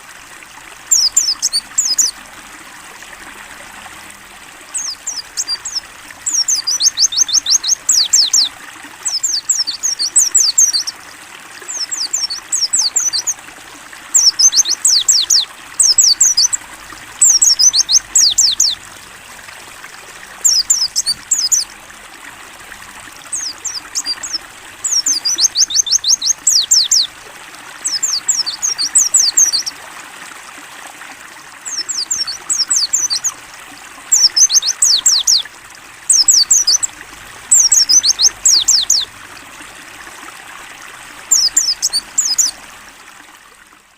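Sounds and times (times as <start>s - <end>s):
trickle of running water: 0.0s - 43.9s
bird singing high chirps: 0.9s - 2.1s, 4.8s - 8.5s, 9.1s - 10.9s, 11.7s - 13.4s, 14.1s - 16.6s, 17.2s - 18.8s, 20.4s - 21.7s, 23.3s - 27.1s, 27.8s - 29.7s, 31.7s - 33.3s, 34.1s - 35.4s, 36.1s - 36.9s, 37.5s - 39.1s, 41.3s - 42.6s.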